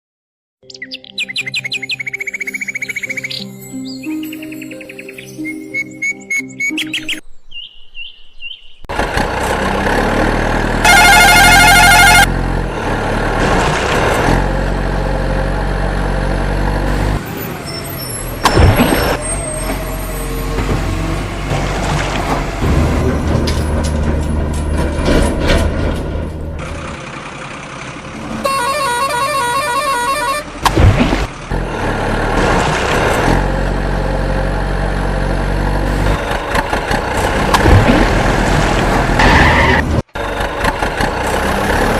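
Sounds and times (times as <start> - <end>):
truck engine running: 8.9 - 41.9
warbling horn blast: 10.8 - 12.4, 28.4 - 30.6.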